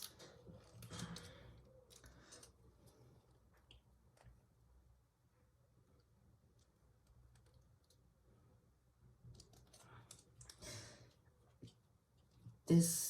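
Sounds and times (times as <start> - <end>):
plastic pieces clicking together: 0.0 - 2.6, 9.3 - 10.6.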